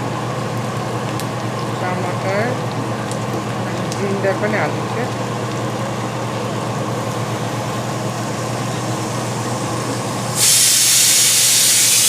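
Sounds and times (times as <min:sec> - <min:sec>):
food sizzling in oil: 0:00.3 - 0:12.0
pressure cooker whistle: 0:10.4 - 0:12.0.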